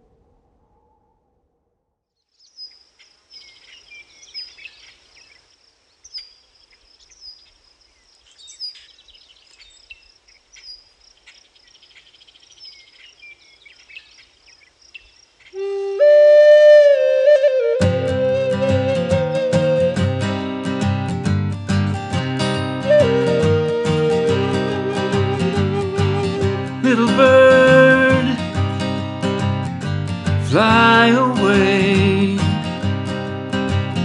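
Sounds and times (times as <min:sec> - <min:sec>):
bird calls: 0:02.3 - 0:16.1
crickets chirping: 0:02.3 - 0:17.0
flute playing held notes: 0:15.6 - 0:20.4, 0:22.6 - 0:28.2.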